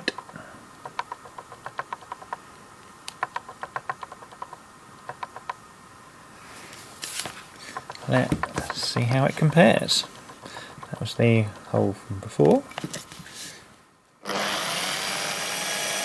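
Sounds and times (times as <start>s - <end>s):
light clicks and taps: 3.0s - 5.6s, 7.6s - 13.1s.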